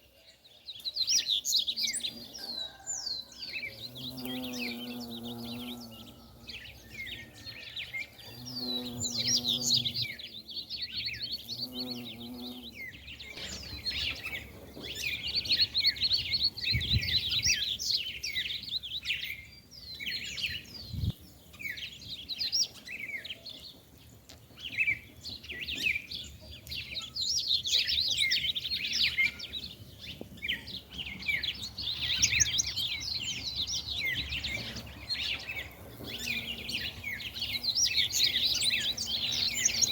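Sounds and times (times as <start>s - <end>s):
small birds chirping: 0.0s - 39.9s
bumblebee buzzing: 3.8s - 6.6s, 8.3s - 10.2s, 11.3s - 12.8s, 35.6s - 39.9s.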